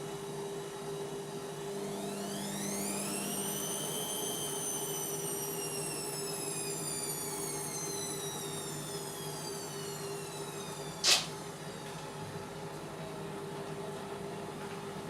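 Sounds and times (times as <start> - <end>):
washing machine motor whining: 0.0 - 15.0
short sharp click: 11.0 - 11.3.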